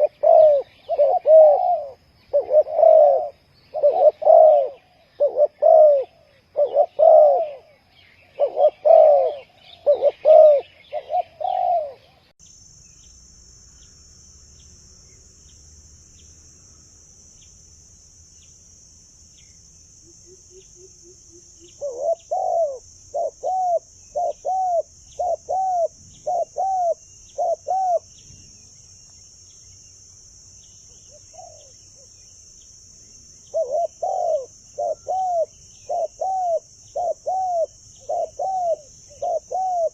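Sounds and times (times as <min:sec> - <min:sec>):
dove cooing: 0:00.0 - 0:12.2, 0:20.5 - 0:28.1, 0:31.1 - 0:31.8, 0:33.5 - 0:39.9
steady high hiss: 0:00.0 - 0:39.9.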